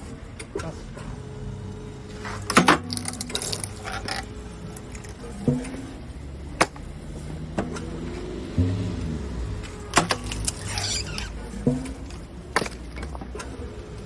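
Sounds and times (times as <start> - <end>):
log splitter power unit hum: 0.0 - 14.0
wood cracking and splintering: 2.5 - 4.2, 12.0 - 13.2.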